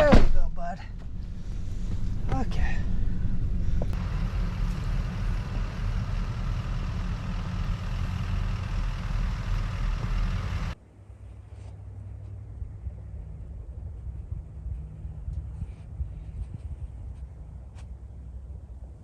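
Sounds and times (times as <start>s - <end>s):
van engine running: 0.0s - 10.8s
quiet low rumble: 0.0s - 19.0s.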